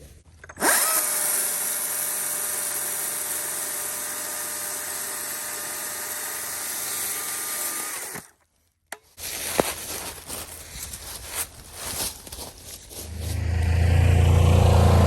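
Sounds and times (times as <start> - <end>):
power saw motor whining: 0.6 - 8.3.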